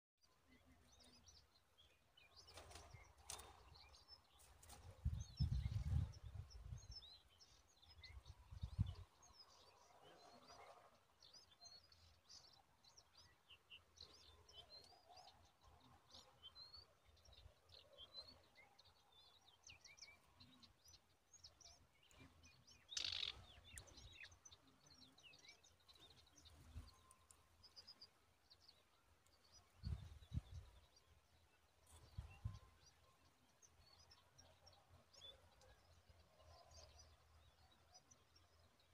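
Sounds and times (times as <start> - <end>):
high bird chirps: 22.8 - 23.8.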